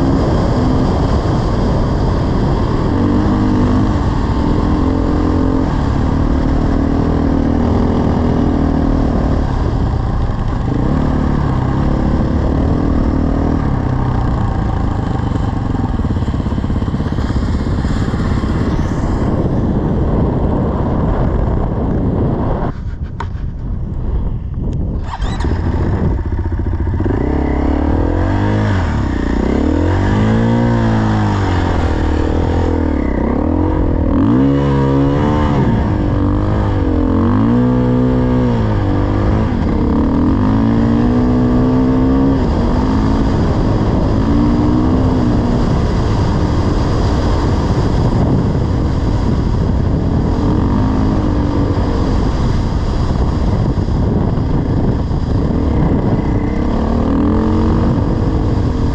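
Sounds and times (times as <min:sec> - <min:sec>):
dirt bike engine revving: 0:00.0 - 0:19.9, 0:25.0 - 0:54.2, 0:54.8 - 0:58.9.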